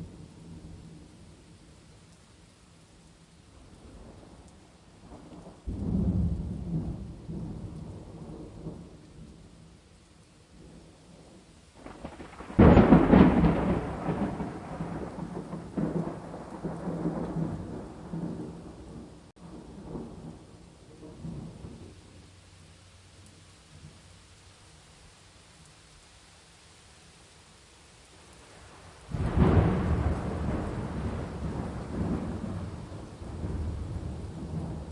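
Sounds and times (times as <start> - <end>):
rain: 0.0 - 34.9
thunder rumbling: 5.0 - 9.4, 10.6 - 22.1, 28.5 - 34.9.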